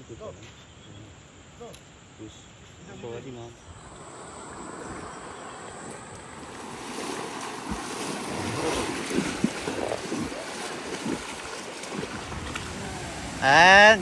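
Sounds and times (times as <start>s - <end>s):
water rushing: 3.6s - 14.0s.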